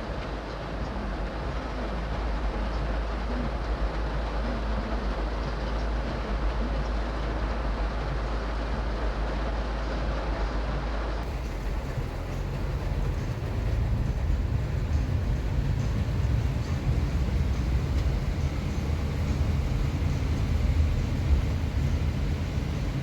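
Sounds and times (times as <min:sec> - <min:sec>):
road noise: 0:11.2 - 0:23.0
vehicle low rumble: 0:11.2 - 0:23.0.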